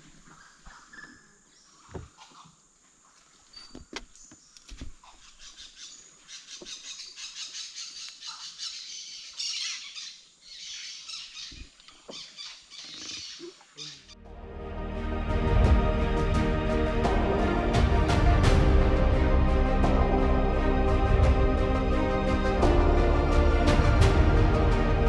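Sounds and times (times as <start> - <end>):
birds calling: 3.4 - 14.2.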